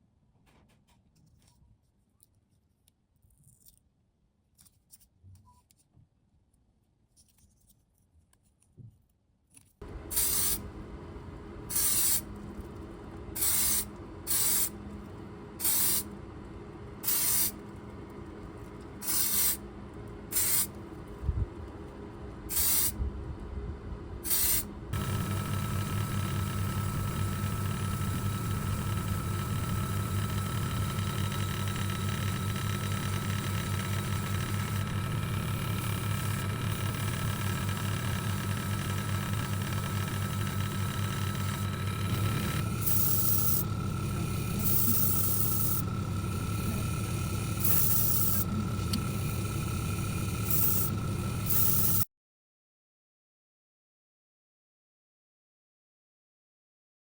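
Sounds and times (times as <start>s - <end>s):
machine hum with high whine: 9.8s - 52.1s
steady motor hum: 9.8s - 52.1s
paint spraying hissing bursts: 10.1s - 10.6s, 11.7s - 12.3s, 13.4s - 14.8s, 15.6s - 16.1s, 17.0s - 17.6s, 19.0s - 19.6s, 20.3s - 20.7s, 22.5s - 22.9s, 24.3s - 24.6s.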